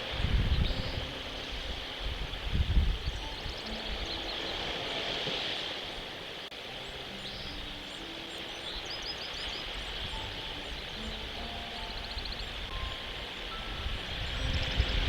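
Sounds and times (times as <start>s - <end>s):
bird chirps: 0.0s - 5.3s, 6.7s - 15.0s.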